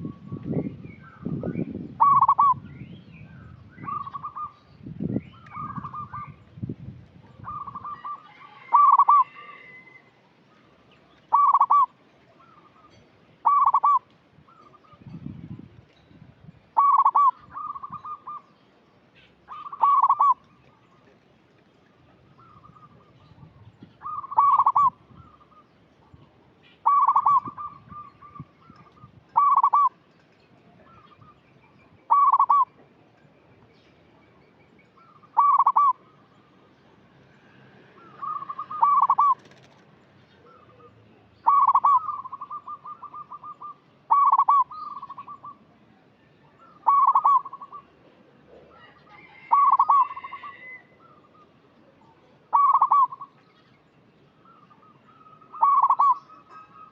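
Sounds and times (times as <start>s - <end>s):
dove cooing: 2.0s - 2.6s, 7.3s - 10.0s, 11.3s - 14.8s, 16.8s - 18.4s, 19.5s - 20.4s, 24.0s - 25.6s, 26.8s - 30.0s, 32.1s - 32.7s, 35.0s - 36.0s, 38.0s - 39.8s, 40.4s - 45.6s, 46.6s - 47.9s, 48.6s - 51.4s, 52.5s - 53.4s, 54.6s - 56.9s.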